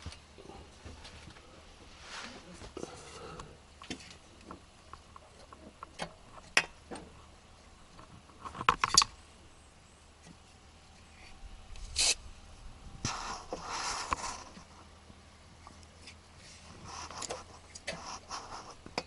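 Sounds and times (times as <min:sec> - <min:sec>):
rustling: 0:00.0 - 0:03.2, 0:15.5 - 0:19.0
short scrape: 0:11.8 - 0:12.2, 0:13.0 - 0:14.6.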